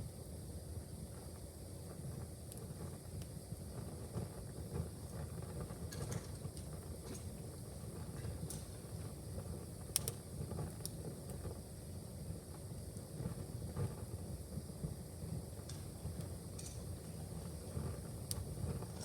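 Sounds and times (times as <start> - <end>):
wood fire crackling: 4.8 - 11.9, 14.8 - 19.0.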